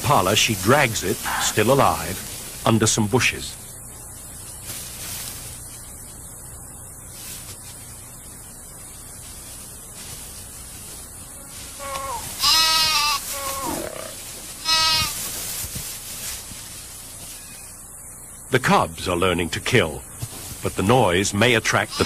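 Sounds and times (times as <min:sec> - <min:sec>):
impala bleating in distress: 0:11.7 - 0:15.2, 0:21.7 - 0:22.0.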